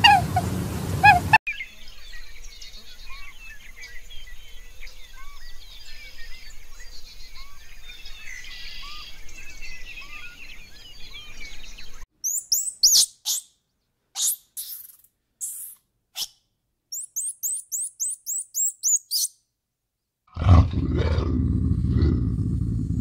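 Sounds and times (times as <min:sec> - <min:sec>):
chorus of small birds chirping: 0:00.0 - 0:13.6, 0:14.2 - 0:16.3, 0:16.9 - 0:19.4
loud high sharp chirps: 0:12.2 - 0:13.6, 0:14.2 - 0:19.4.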